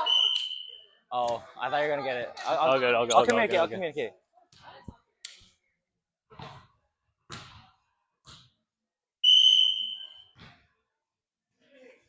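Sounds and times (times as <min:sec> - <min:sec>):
referee's whistle blast: 0:00.0 - 0:00.8, 0:09.2 - 0:10.4.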